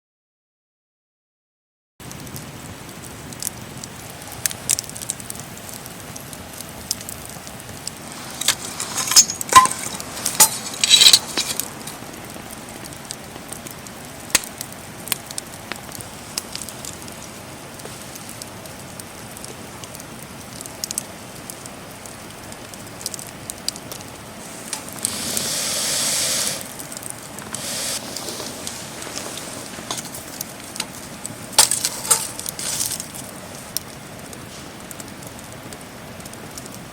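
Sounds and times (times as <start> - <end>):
sharp pops from fire: 2.0 - 36.9
wood fire crackling: 2.0 - 36.9
rushing hiss: 7.8 - 12.1, 24.3 - 33.7
clinks: 8.3 - 11.7.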